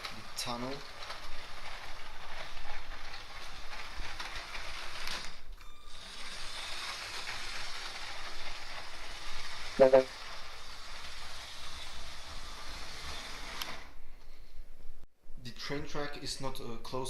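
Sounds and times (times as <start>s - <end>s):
toy train wheels clicking: 0.0s - 13.8s
small motor whirring: 1.1s - 13.9s.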